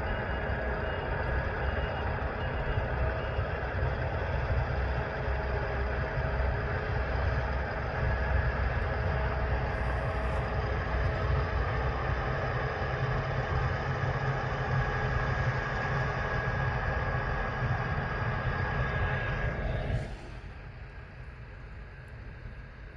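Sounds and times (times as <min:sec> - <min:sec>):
deep engine rumble: 0:00.0 - 0:22.9
mechanical whines: 0:09.4 - 0:22.4.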